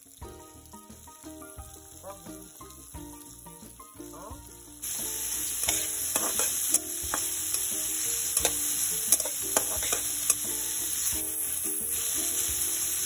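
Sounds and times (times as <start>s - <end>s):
vegetables sizzling in oil: 0.0s - 13.0s
metal spatula scraping a wok: 4.8s - 13.0s.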